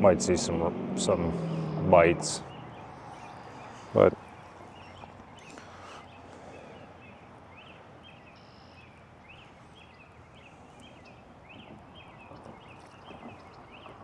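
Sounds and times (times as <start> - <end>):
animals chirping: 0.5 - 7.7.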